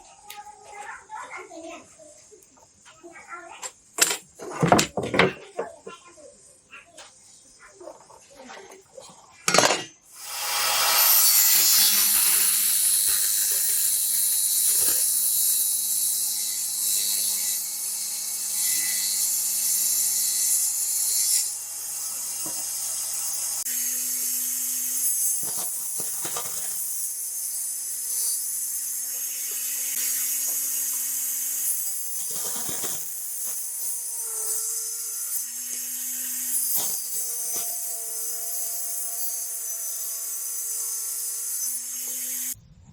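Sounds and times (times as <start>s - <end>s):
power tool scraping workpiece: 9.5s - 42.6s.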